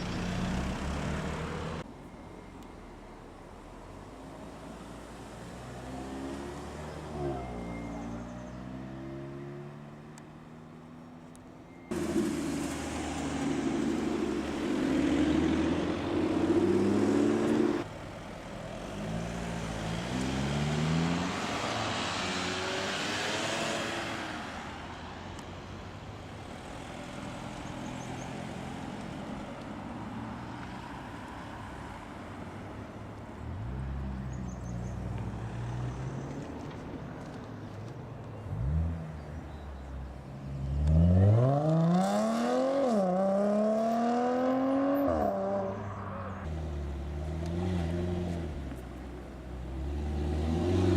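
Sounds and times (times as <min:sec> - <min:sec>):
car engines revving: 0:00.0 - 0:01.9, 0:03.9 - 0:50.9
steady engine hum: 0:11.9 - 0:18.6.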